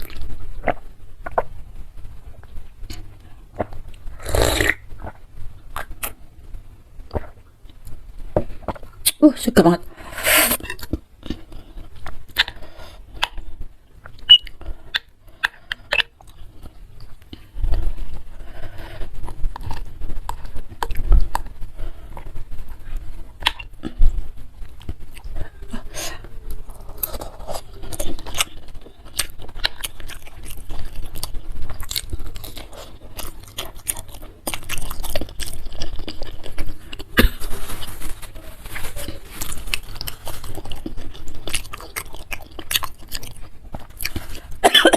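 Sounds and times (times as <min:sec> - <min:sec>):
chewing and wet mouth clicks: 0:13.2 - 0:13.4, 0:14.0 - 0:16.4.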